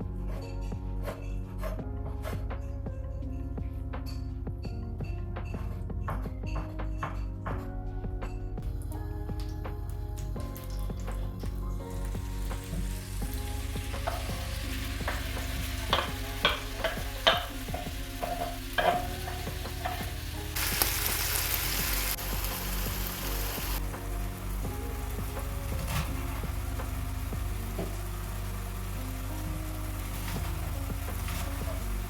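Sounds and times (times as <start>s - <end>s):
food sizzling in a frying pan: 11.8s - 32.0s
utensil clicking against pan: 15.1s - 20.3s.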